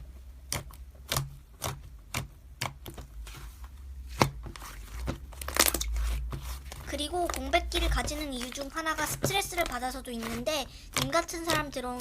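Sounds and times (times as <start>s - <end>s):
slime clicking and popping: 0.4s - 3.0s.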